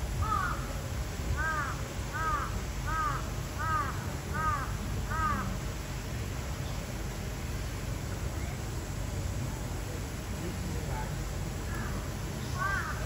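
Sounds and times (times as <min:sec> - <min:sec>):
low steady rumble: 0:00.0 - 0:13.0
bird giving harsh caw calls: 0:00.2 - 0:00.6, 0:01.4 - 0:05.5, 0:12.6 - 0:13.0.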